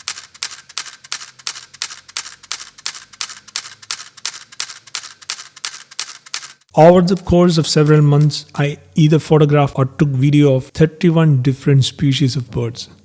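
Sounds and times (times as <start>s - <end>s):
camera shutter clicking: 0.0s - 7.3s.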